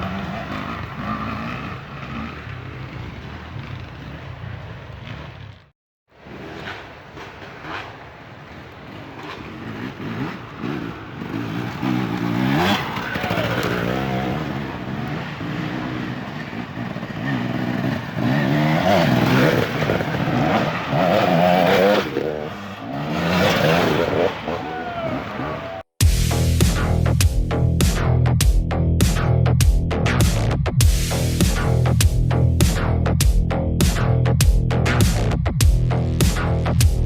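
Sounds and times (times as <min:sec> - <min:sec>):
dirt bike engines revving: 0:00.0 - 0:25.9.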